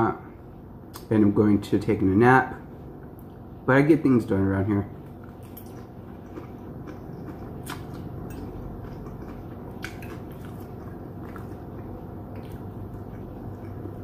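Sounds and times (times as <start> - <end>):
person chewing food: 5.0 - 14.0.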